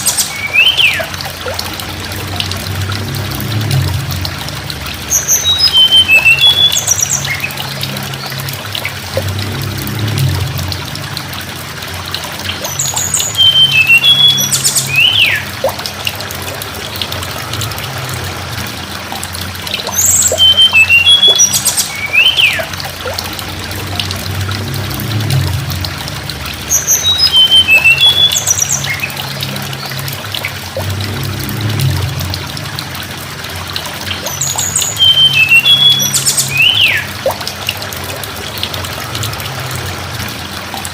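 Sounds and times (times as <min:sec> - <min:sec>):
low hum: 0:00.0 - 0:40.9
water trickling: 0:00.0 - 0:40.9
bird singing high chirps: 0:00.2 - 0:01.1, 0:05.2 - 0:07.6, 0:12.6 - 0:15.5, 0:19.9 - 0:22.7, 0:26.7 - 0:29.2.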